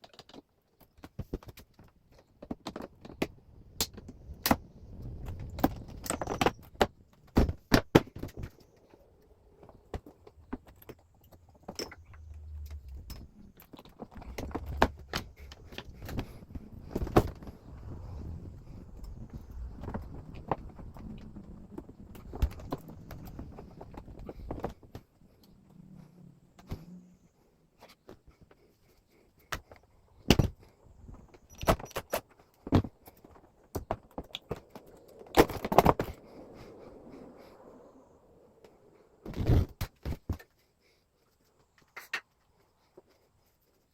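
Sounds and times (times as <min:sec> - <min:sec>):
plastic parts clicking and rattling: 0:00.0 - 0:17.6, 0:27.8 - 0:36.2
hard parts clicking and knocking: 0:09.6 - 0:17.5
low rumble: 0:11.4 - 0:24.2.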